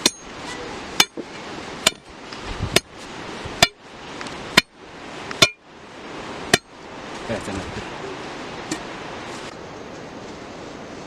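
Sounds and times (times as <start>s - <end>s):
hammer blows with metallic ring: 0.0s - 0.3s, 3.6s - 3.8s, 5.4s - 5.6s, 6.5s - 6.8s.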